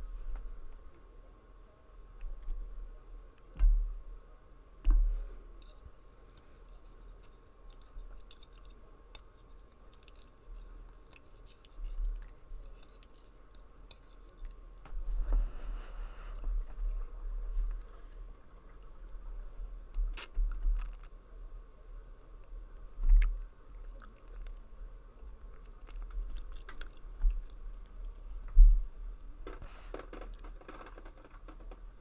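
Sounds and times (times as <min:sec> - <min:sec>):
chewing noodles: 0:05.6 - 0:14.9, 0:22.2 - 0:28.7.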